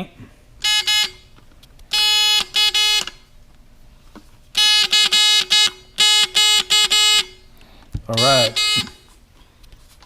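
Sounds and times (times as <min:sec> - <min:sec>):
electric buzzer beeping: 0:00.6 - 0:01.3, 0:01.9 - 0:03.2, 0:04.6 - 0:07.4, 0:08.1 - 0:09.1.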